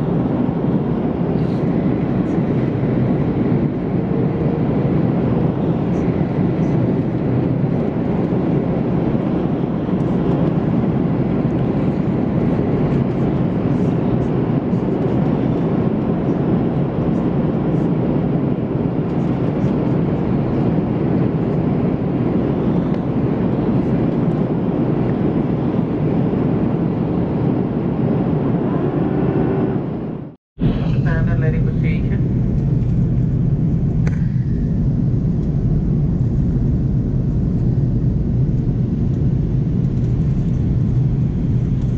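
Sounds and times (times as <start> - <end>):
airliner cabin engine drone: 0.0 - 41.9.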